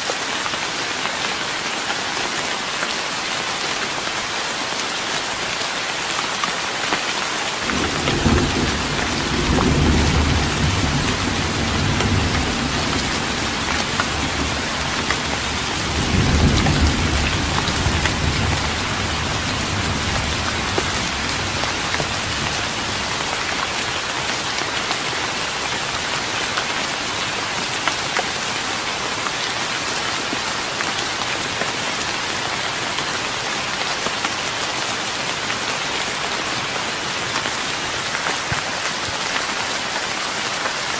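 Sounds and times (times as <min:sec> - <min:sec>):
rain on a wooden deck: 0:00.0 - 0:40.9
low rolls of thunder: 0:07.7 - 0:23.1.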